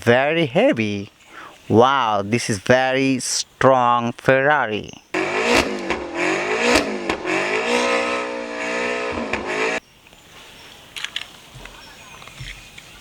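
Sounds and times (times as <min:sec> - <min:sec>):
car engine revving: 0:05.2 - 0:09.8.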